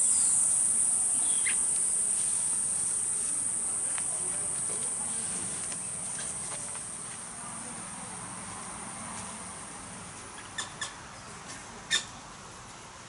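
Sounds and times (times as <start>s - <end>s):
high insect drone: 0.0s - 10.0s.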